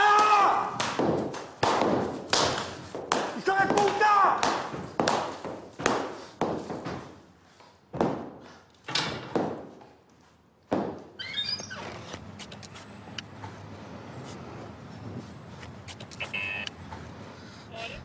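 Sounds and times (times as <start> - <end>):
heavy thuds against a wall: 7.9 - 9.8
short falling squeak: 11.2 - 12.1.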